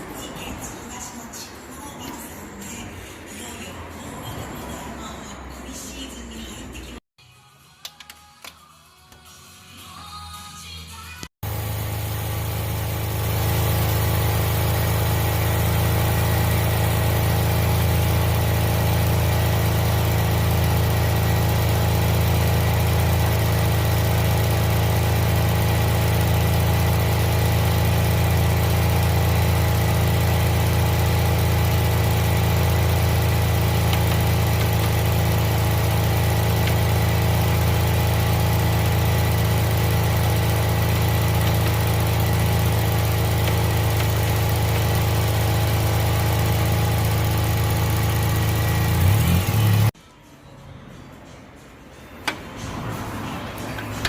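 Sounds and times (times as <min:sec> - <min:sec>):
car engine idling: 0:11.4 - 0:49.9.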